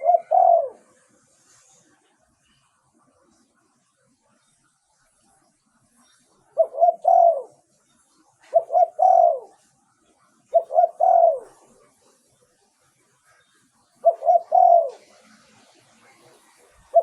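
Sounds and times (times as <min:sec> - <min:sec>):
dove cooing: 0:00.0 - 0:01.2, 0:06.4 - 0:07.8, 0:08.4 - 0:12.4, 0:13.3 - 0:17.0.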